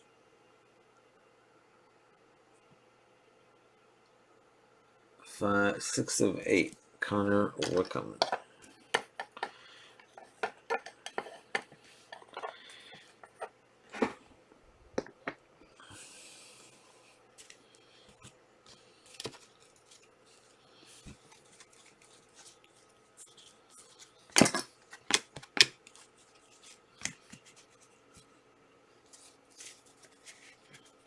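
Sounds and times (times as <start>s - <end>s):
card pack rustle: 18.7s - 27.9s, 29.1s - 31.0s
cards clicking and snapping: 24.3s - 26.0s.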